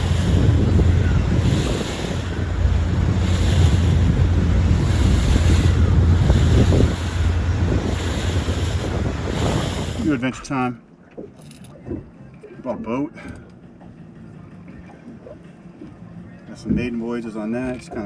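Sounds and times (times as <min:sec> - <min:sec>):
wind buffeting microphone: 0:00.0 - 0:10.2
water splashing against boat: 0:00.0 - 0:18.0.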